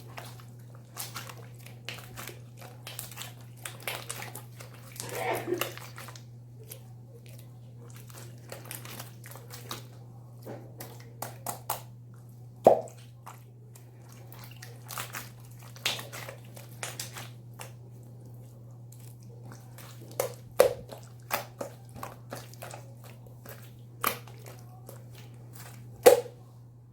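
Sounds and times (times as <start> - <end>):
slime squishing wet clicks: 18.9 - 26.3.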